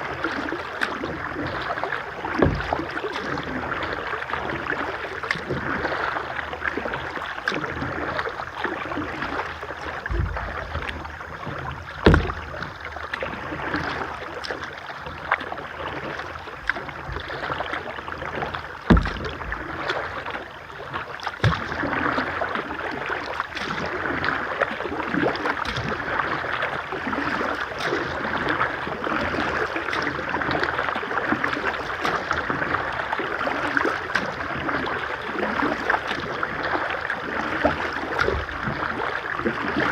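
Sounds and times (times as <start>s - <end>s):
flowing river water: 0.0s - 39.9s
sharp knocks on kayak: 2.4s - 2.8s, 10.1s - 10.9s, 11.5s - 12.8s, 18.8s - 19.5s, 21.4s - 21.9s.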